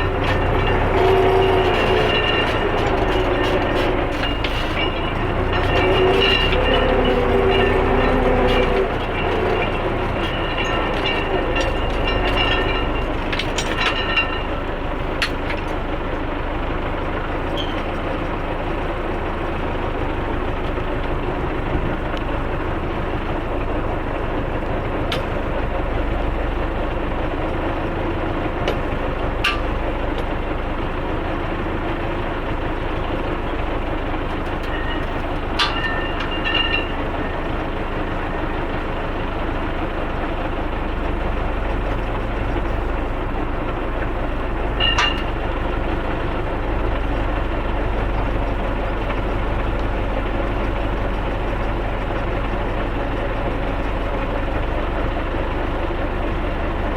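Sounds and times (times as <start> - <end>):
sharp metallic clanks: 0.0 - 15.8, 34.5 - 38.8, 44.8 - 45.8
metal roller rings rattling: 0.0 - 16.5, 33.0 - 56.9
tractor engine running: 0.0 - 56.9.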